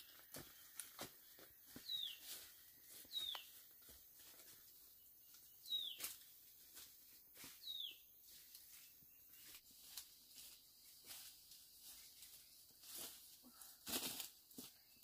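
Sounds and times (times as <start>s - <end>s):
small bird chirping: 1.8s - 3.7s, 4.8s - 6.3s, 7.6s - 13.7s.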